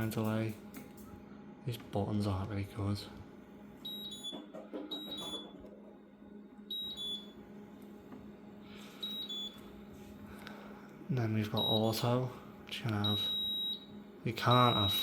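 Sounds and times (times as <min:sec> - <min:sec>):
dishwasher control panel beeping: 0:03.8 - 0:05.6, 0:06.7 - 0:07.3, 0:09.0 - 0:09.6, 0:14.4 - 0:15.0.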